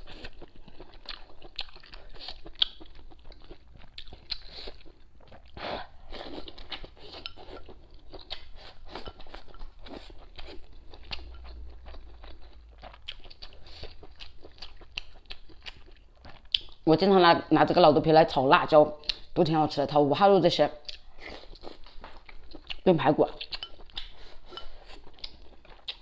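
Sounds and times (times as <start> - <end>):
person chewing crunchy food: 0.0 - 16.9, 20.8 - 26.0.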